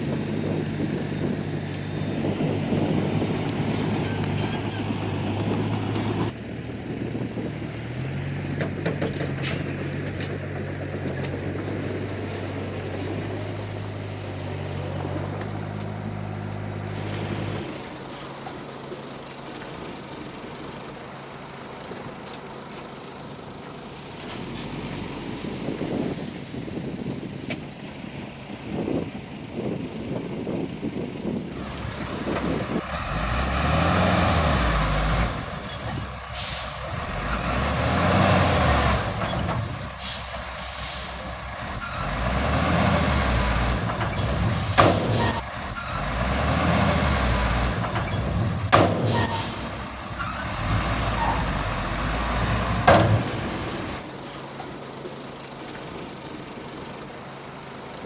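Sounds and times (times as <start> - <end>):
bulldozer diesel engine revving: 0.0 - 58.0
faint high squeals: 9.4 - 10.0.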